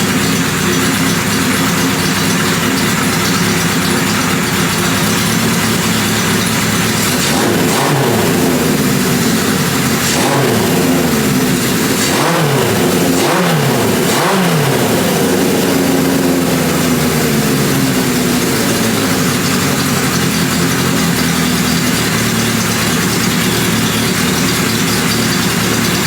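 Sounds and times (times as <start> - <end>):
motorcycle engine revving and idling: 0.0 - 26.0.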